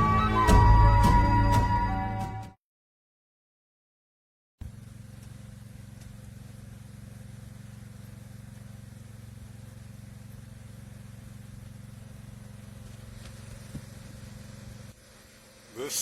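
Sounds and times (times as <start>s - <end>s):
low motor hum: 4.6s - 16.0s.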